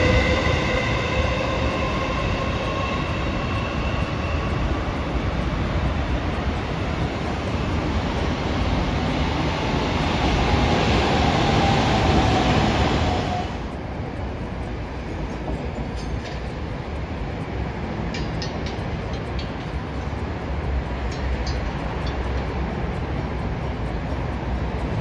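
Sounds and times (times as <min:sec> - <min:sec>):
train rumbling past: 0:00.0 - 0:25.0.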